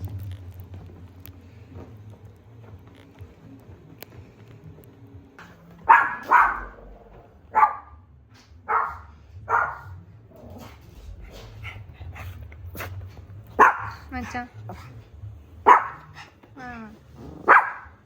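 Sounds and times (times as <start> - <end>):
small dog barking: 5.8 - 8.0, 8.6 - 10.0, 13.6 - 14.1, 15.6 - 16.2, 17.4 - 18.0.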